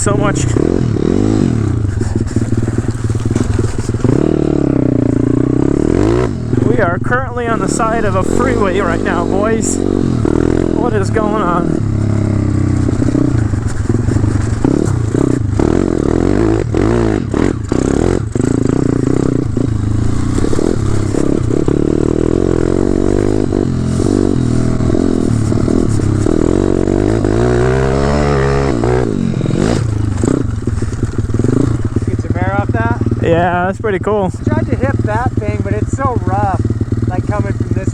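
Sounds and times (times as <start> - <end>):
motorcycle engine revving: 0.0 - 37.9
knocks and clatter: 1.6 - 4.5, 12.0 - 28.9, 29.6 - 33.1.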